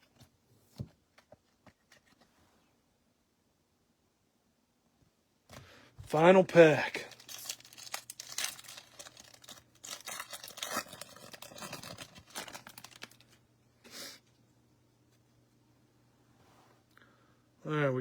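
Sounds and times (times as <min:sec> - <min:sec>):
wrapper tearing and crinkling: 0:06.1 - 0:13.4.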